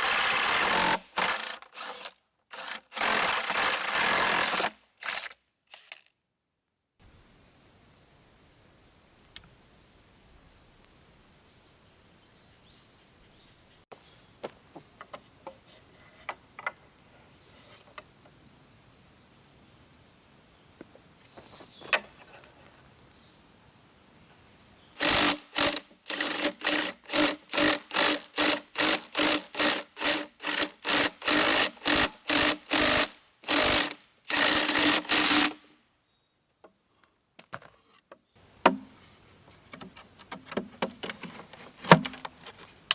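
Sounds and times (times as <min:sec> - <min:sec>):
hand saw cutting bamboo: 0:00.0 - 0:06.0, 0:25.0 - 0:35.7
insect drone: 0:00.0 - 0:42.9.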